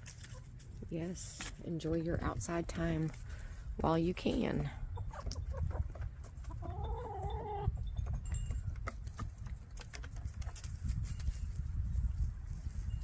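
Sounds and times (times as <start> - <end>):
hens clucking: 4.3 - 10.8.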